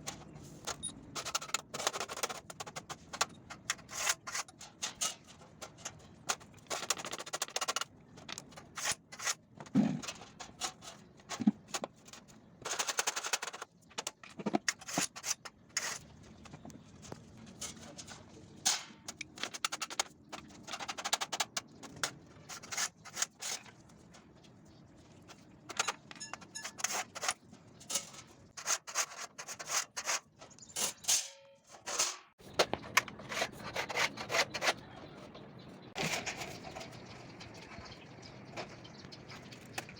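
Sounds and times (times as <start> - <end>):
scriber scraping sheet steel: 3.6 - 6.0, 25.9 - 34.9.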